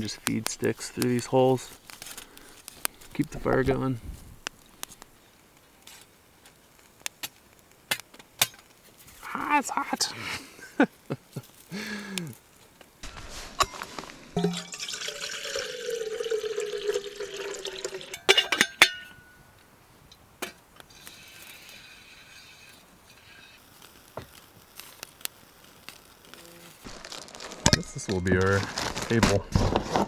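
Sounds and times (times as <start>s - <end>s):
water pouring into container: 14.4s - 18.2s
sharp clinks: 18.2s - 19.5s.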